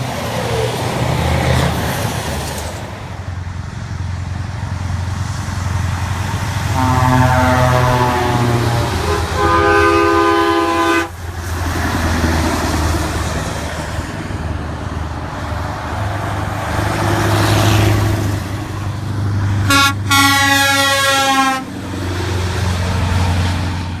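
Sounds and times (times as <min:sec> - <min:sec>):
diesel engine running: 0:00.0 - 0:24.0
truck horn blasts: 0:06.6 - 0:11.2, 0:19.6 - 0:21.7.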